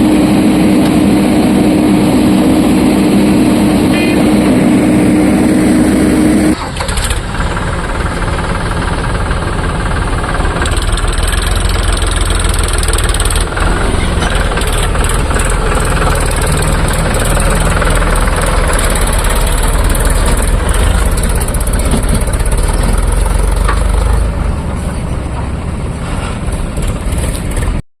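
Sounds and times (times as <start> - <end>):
heavy diesel engine rumbling: 0.0 - 27.8.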